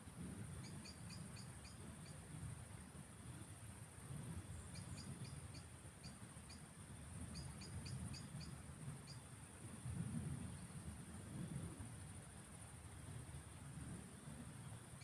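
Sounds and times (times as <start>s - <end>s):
high-pitched insect trill: 0.6s - 2.2s, 4.5s - 6.7s, 7.3s - 9.3s
small bird chirping: 0.6s - 2.2s, 4.5s - 6.6s.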